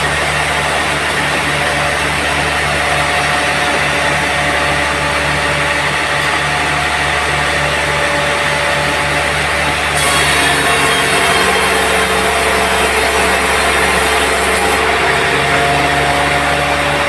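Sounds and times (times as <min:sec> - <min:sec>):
sawmill blade spinning: 0:00.0 - 0:17.0
saw cutting into log: 0:10.0 - 0:17.0.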